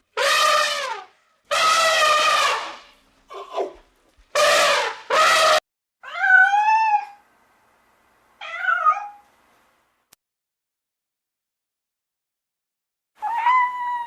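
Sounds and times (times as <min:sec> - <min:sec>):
cat meowing: 0:06.0 - 0:07.2, 0:08.4 - 0:09.2, 0:13.2 - 0:14.0.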